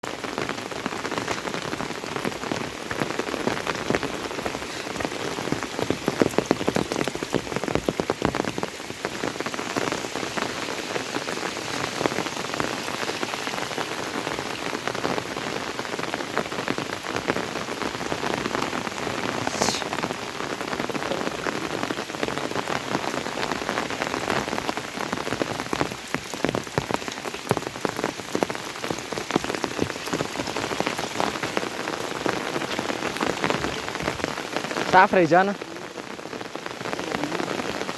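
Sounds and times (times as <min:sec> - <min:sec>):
steady rain patter: 0:00.0 - 0:37.9.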